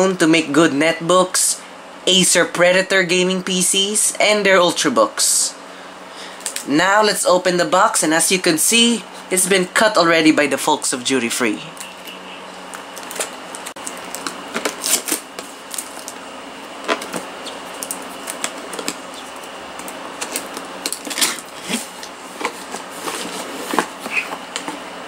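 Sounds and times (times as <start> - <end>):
cardboard packaging handled: 12.7 - 16.2, 16.8 - 24.8.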